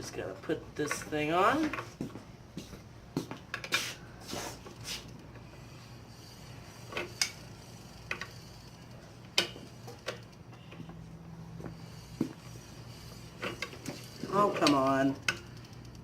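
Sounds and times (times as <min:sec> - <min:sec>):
bicycle pedal metal clicks: 0:06.8 - 0:08.5, 0:09.2 - 0:11.0, 0:13.4 - 0:16.0.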